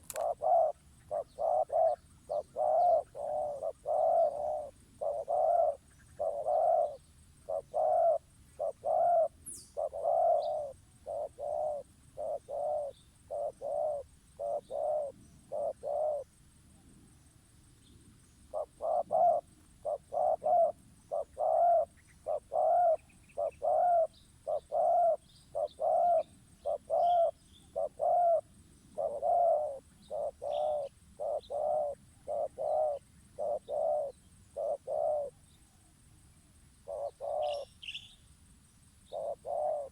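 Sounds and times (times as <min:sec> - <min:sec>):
dove cooing: 0:00.0 - 0:16.3, 0:18.5 - 0:35.4, 0:36.8 - 0:38.0, 0:39.1 - 0:39.9.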